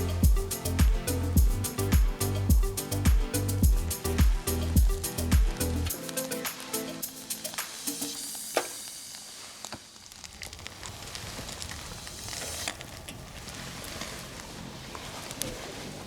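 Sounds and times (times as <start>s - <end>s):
food sizzling: 5.9s - 14.8s
campfire crackling pops: 7.5s - 14.5s.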